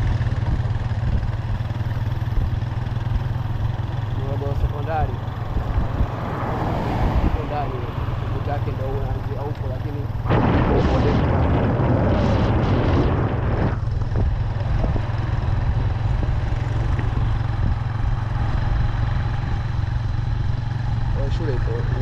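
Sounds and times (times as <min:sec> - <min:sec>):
vehicle driving on road: 0:00.0 - 0:22.0
loud rushing noise: 0:10.2 - 0:14.5.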